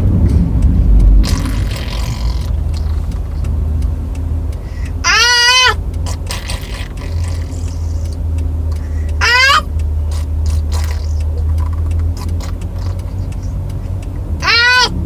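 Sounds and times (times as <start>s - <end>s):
car road rumble: 0.0s - 15.0s
child squealing: 5.0s - 7.9s, 8.9s - 11.5s, 14.4s - 15.0s.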